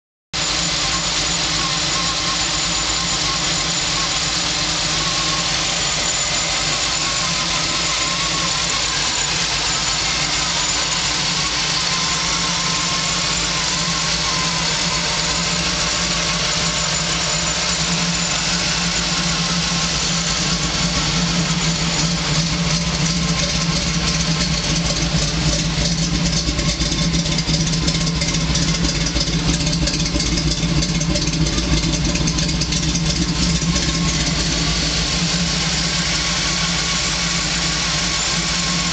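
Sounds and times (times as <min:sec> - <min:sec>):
car engine idling: 0:00.4 - 0:38.9.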